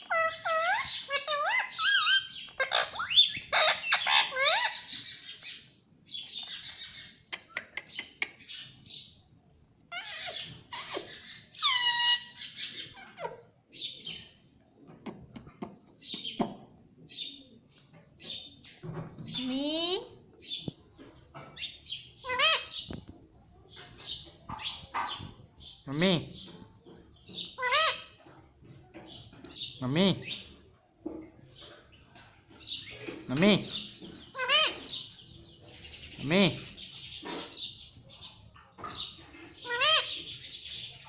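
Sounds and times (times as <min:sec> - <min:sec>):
parrot chirping and squawking: 0:00.0 - 0:05.6, 0:09.9 - 0:13.5, 0:22.2 - 0:22.9, 0:27.4 - 0:28.2, 0:33.6 - 0:35.2, 0:36.2 - 0:37.8, 0:38.6 - 0:40.6.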